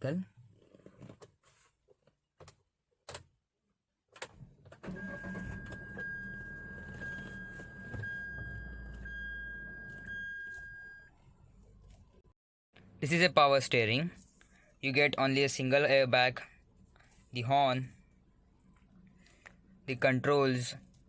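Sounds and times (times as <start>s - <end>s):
car engine starting and idling: 4.3s - 12.2s.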